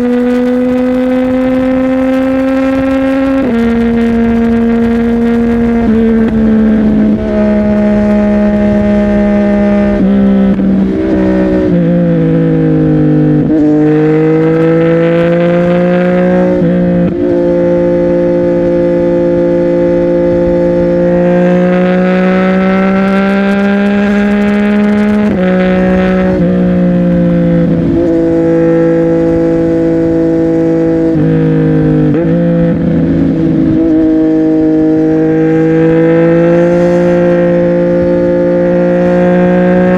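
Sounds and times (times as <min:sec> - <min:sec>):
motorcycle engine riding: 0:00.0 - 0:39.9.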